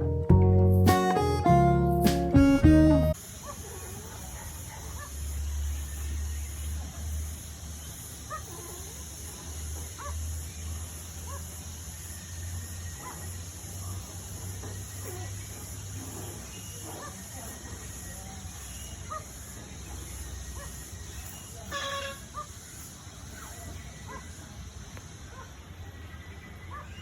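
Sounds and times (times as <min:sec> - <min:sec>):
acoustic guitar music: 0:00.0 - 0:03.2
steady high hiss: 0:03.1 - 0:09.6
faint bird calls: 0:14.6 - 0:24.4.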